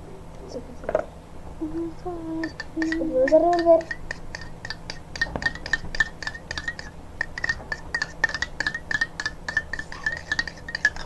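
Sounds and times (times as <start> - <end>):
utensil stirring and clinking container: 2.4 - 11.0.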